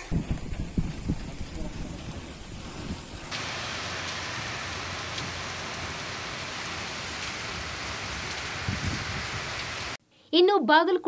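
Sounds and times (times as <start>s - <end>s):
heavy rain on road: 3.3s - 10.0s.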